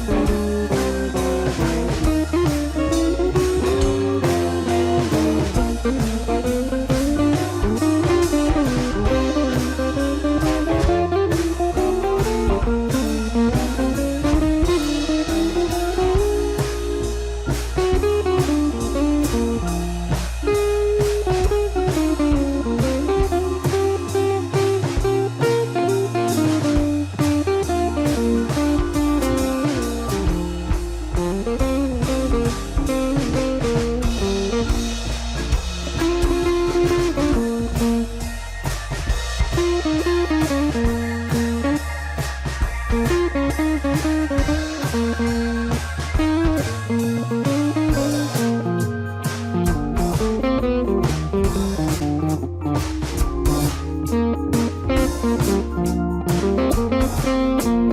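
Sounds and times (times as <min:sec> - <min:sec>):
blues electric guitar with bass and drums: 0:00.0 - 0:57.9.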